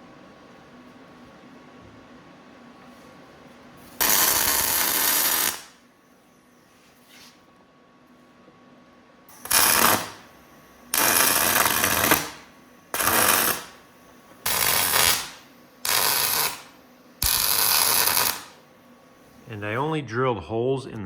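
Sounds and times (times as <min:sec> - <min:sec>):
arc welding crackle: 0:03.8 - 0:05.8, 0:09.3 - 0:18.6.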